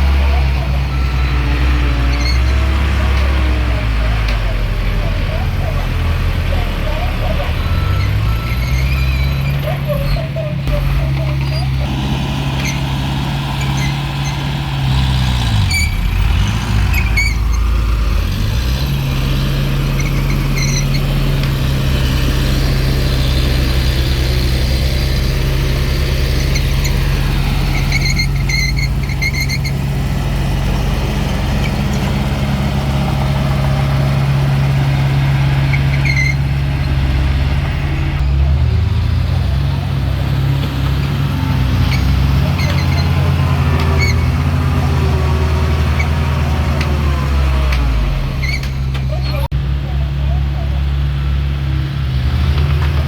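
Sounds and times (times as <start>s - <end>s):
steel tracks squeaking: 0.0s - 17.7s, 19.8s - 24.5s, 25.1s - 30.1s, 30.7s - 38.6s, 40.6s - 49.5s
bulldozer diesel engine running: 0.0s - 53.0s.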